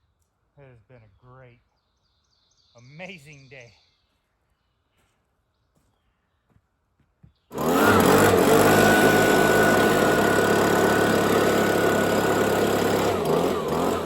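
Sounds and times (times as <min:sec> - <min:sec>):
small gasoline engine running: 0:07.5 - 0:14.0.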